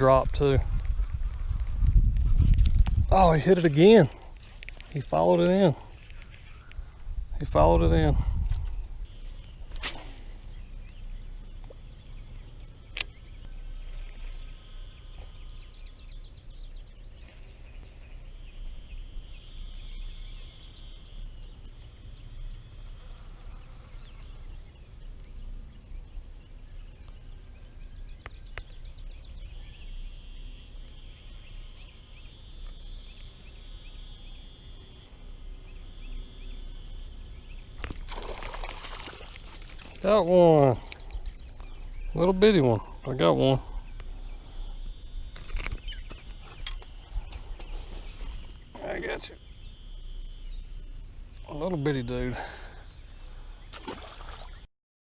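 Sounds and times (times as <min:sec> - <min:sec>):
wind rumbling on microphone: 0:00.0 - 0:20.4
high insect drone: 0:00.0 - 0:54.7
sharp click: 0:12.9 - 0:13.2
buzzy trilling calls: 0:35.6 - 0:49.8.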